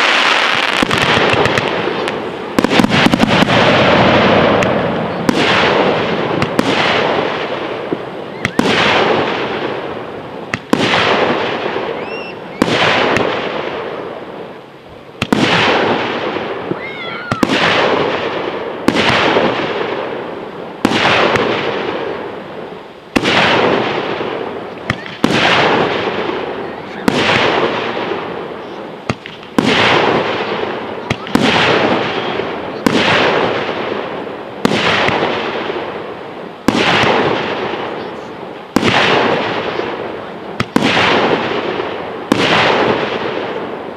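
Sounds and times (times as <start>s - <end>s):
firework shells bursting: 0.0s - 13.8s, 23.1s - 43.8s
rumbling echo: 0.0s - 14.5s.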